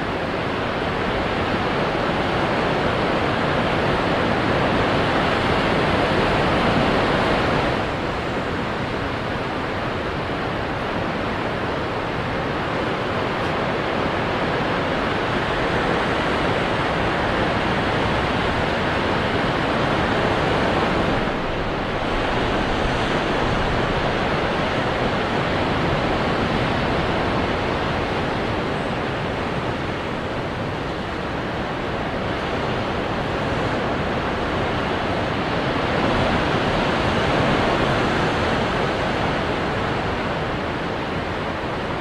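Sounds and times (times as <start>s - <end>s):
ocean waves breaking on rocks: 9.8s - 42.0s.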